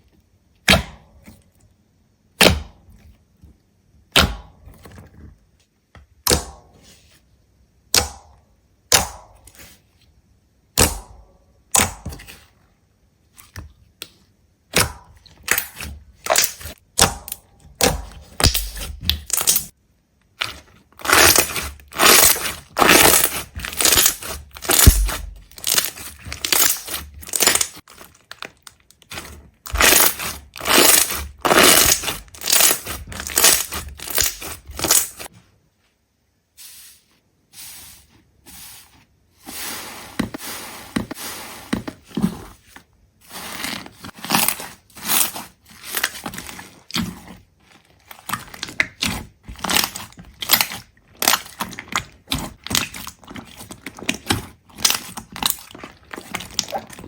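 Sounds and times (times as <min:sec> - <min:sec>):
brittle material cracking and crunching: 0:21.0 - 0:35.3, 0:47.8 - 0:57.0.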